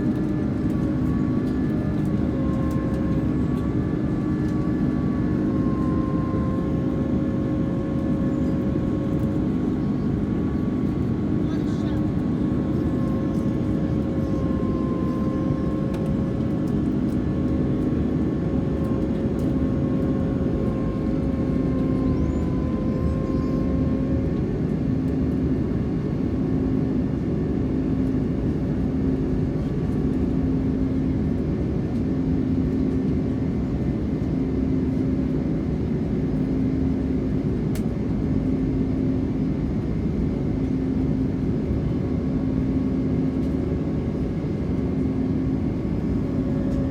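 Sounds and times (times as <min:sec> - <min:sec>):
low pulsing hum: 0:00.0 - 0:26.4, 0:39.7 - 0:46.9
airliner cabin engine noise: 0:00.0 - 0:46.9.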